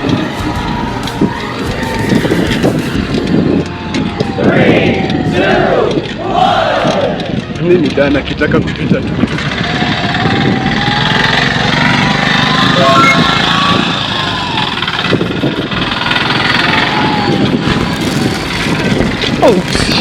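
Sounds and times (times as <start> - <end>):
traffic noise: 0.0 - 20.0
small engine running: 9.2 - 20.0.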